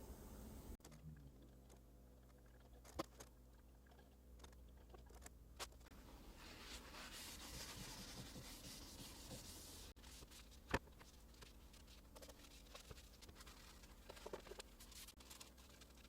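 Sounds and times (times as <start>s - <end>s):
faint rubbing on a surface: 6.0s - 10.5s.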